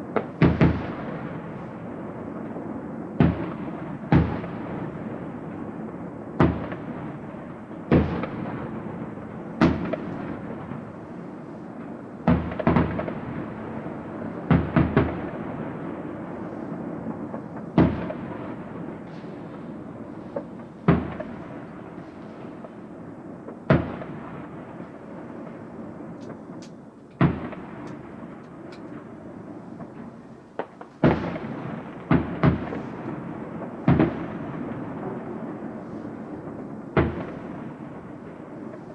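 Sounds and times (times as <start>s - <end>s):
rumble of fireworks: 0.0s - 38.9s
fireworks bursting: 6.4s - 38.9s.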